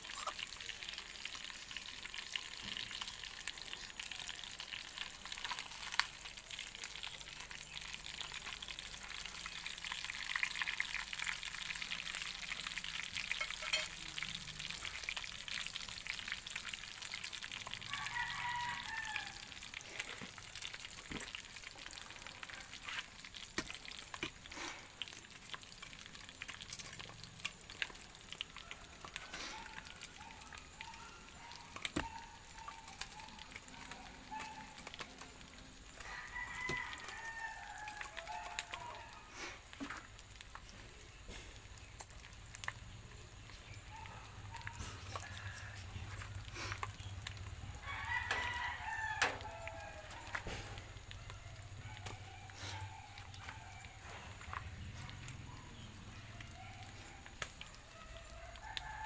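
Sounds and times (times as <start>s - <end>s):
food sizzling in a pan: 0.0s - 59.0s
rooster crowing: 17.7s - 19.6s, 28.5s - 33.4s, 35.9s - 39.4s, 43.9s - 46.2s, 47.6s - 54.2s, 56.3s - 59.0s.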